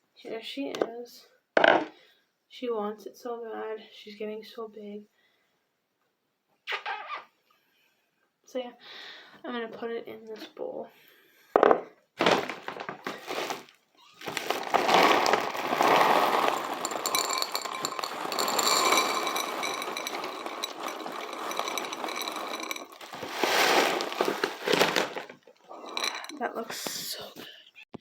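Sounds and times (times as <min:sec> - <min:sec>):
kibble pouring into a bowl: 0:12.2 - 0:26.4.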